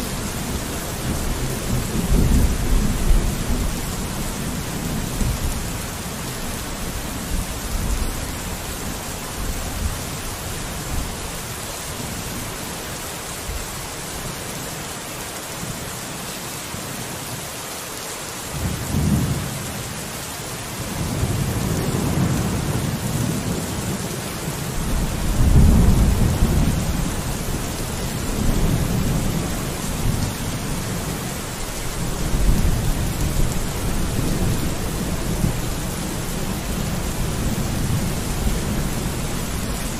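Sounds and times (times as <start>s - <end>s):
rain on a window: 0.0s - 39.9s
thunder rumbling: 24.8s - 39.9s.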